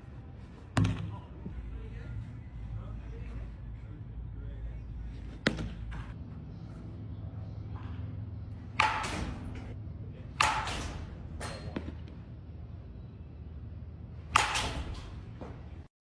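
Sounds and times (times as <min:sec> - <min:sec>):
low steady hum: 0:00.0 - 0:15.9
ball striking bat or glove: 0:00.8 - 0:01.2, 0:05.4 - 0:06.1, 0:08.7 - 0:09.6, 0:10.4 - 0:12.1, 0:14.3 - 0:14.9.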